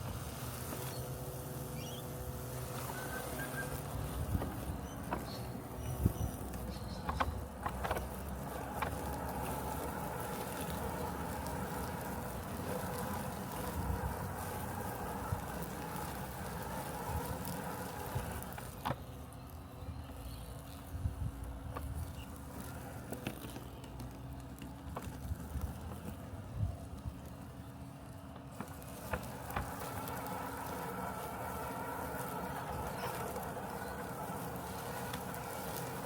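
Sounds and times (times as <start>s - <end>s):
robotic lawn mower humming: 0.0s - 36.0s
small clicks: 2.7s - 26.2s.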